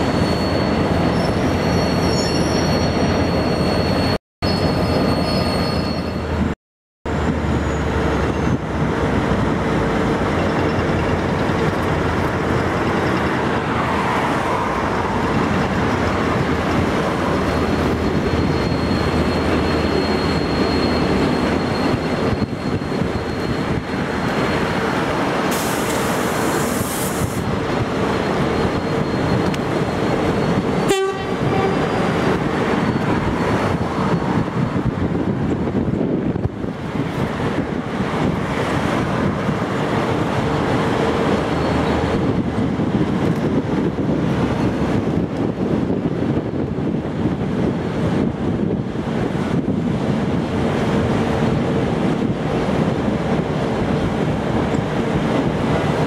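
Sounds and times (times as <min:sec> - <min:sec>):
train running with hum: 0:00.0 - 0:56.0
brief high hiss: 0:25.5 - 0:27.4.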